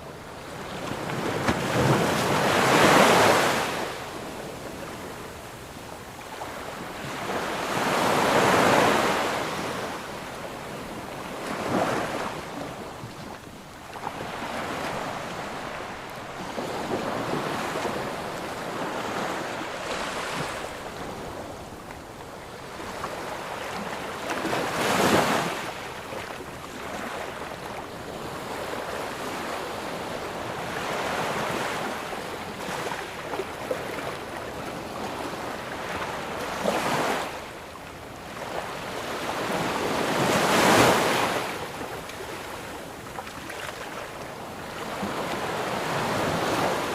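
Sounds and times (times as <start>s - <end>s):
ocean waves breaking: 0.4s - 5.3s, 6.4s - 27.5s.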